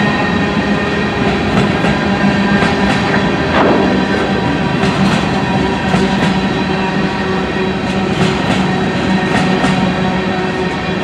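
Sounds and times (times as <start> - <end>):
steel wheels rumbling on rail: 0.0 - 11.0
wheels clacking over rail joints: 1.2 - 6.6.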